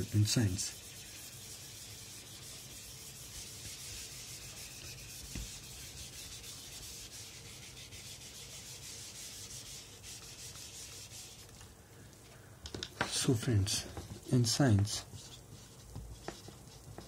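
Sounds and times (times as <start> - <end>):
faint scratchy rubbing: 0.0 - 11.6.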